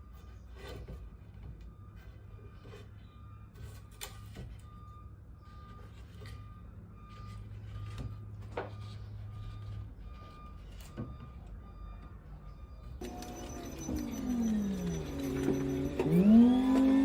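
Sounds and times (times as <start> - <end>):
short electronic beeps: 11.7 - 17.0.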